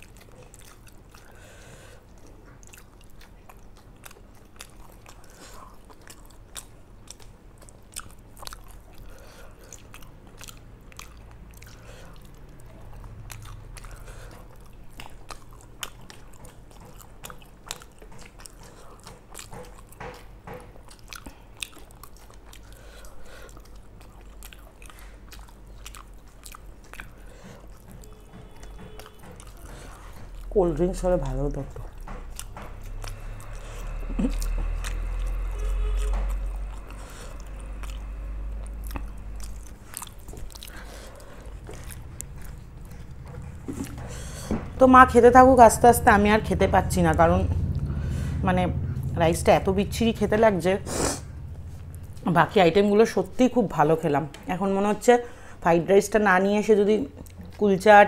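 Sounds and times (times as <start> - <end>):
people chewing and eating: 0.0 - 49.1, 49.8 - 58.0
low steady hum: 0.0 - 58.0
mouth clicks and smacks: 2.2 - 30.6, 31.6 - 44.8.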